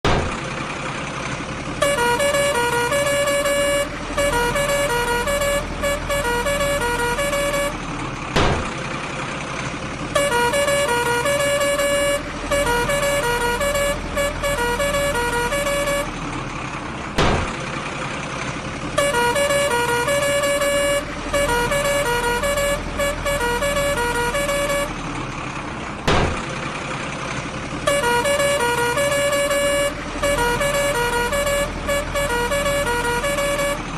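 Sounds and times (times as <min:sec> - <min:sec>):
electronic horn tune beeping: 0:01.8 - 0:07.8, 0:10.2 - 0:16.1, 0:19.0 - 0:24.9, 0:27.9 - 0:33.9.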